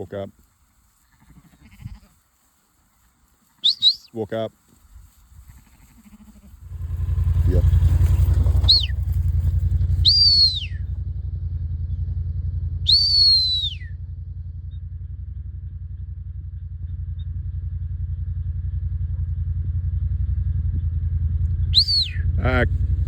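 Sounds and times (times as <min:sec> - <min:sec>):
low engine rumble: 0:02.8 - 0:23.0
person whistling commands: 0:03.6 - 0:04.2, 0:10.0 - 0:10.8, 0:12.9 - 0:13.9, 0:21.8 - 0:22.2.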